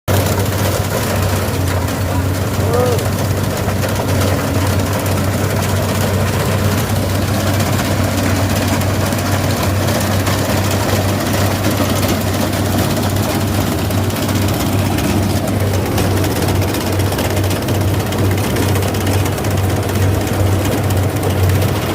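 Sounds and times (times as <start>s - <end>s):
combine harvester running: 0.1s - 21.9s.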